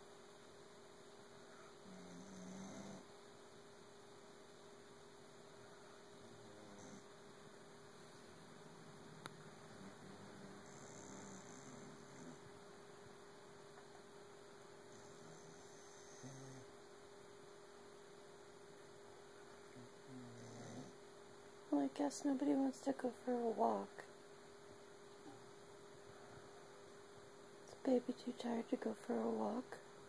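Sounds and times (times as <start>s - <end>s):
electrical hum: 0.0s - 30.0s
dog snoring: 1.5s - 3.1s, 6.2s - 7.1s, 9.6s - 12.5s, 14.9s - 16.7s, 19.7s - 21.0s.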